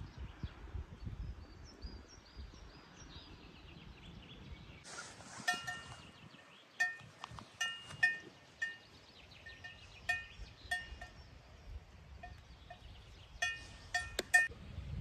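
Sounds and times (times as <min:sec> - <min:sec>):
livestock bells clanking: 0:05.4 - 0:06.2, 0:06.8 - 0:11.3, 0:12.2 - 0:14.5.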